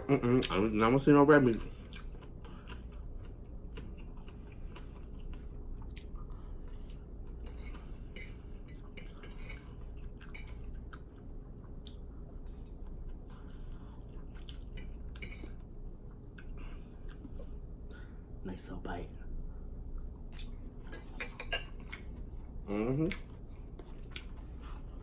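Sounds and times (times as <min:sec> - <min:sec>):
steady low hum: 0:00.0 - 0:25.0
chewing and mouth smacks: 0:01.8 - 0:07.5, 0:08.2 - 0:17.4, 0:23.1 - 0:25.0.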